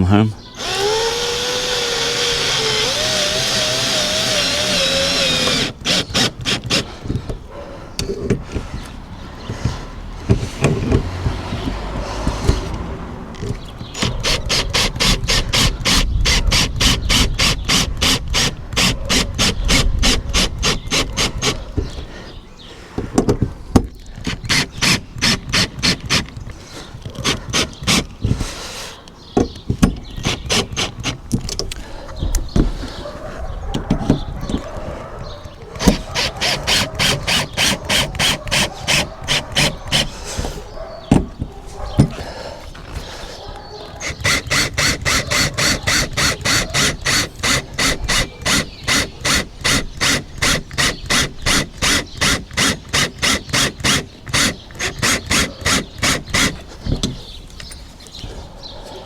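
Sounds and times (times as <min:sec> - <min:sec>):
power drill motor whine: 0:00.6 - 0:07.0, 0:13.9 - 0:22.0, 0:35.8 - 0:40.1, 0:44.0 - 0:56.6
rapid clicks of drill clutch: 0:00.6 - 0:07.3, 0:44.0 - 0:56.7.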